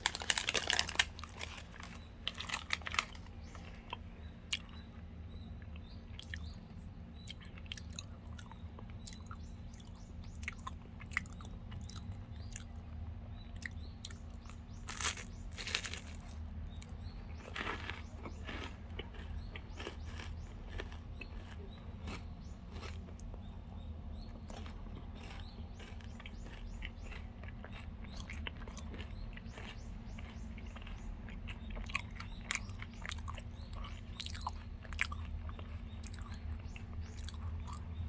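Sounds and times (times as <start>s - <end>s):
chocolate bar crunching: 0.0s - 4.8s, 13.7s - 23.5s, 24.5s - 37.8s
chewing with small crackles: 0.0s - 38.0s.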